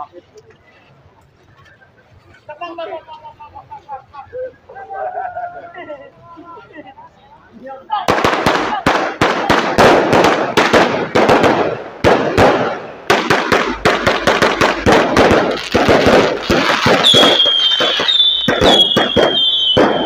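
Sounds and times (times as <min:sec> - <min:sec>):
fireworks bangs and crackles: 0:08.1 - 0:20.0
shrill firework whistle: 0:17.0 - 0:20.0.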